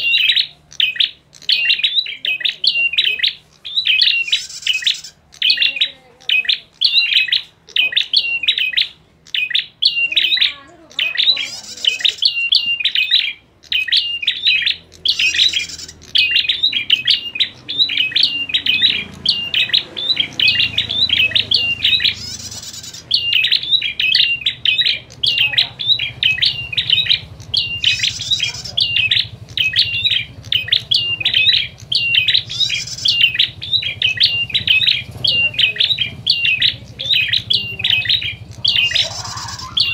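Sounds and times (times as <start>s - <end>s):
birds chattering with high chirps: 0.0s - 39.9s
buzzy bird call burst: 3.3s - 5.2s, 15.0s - 23.5s, 31.6s - 33.9s.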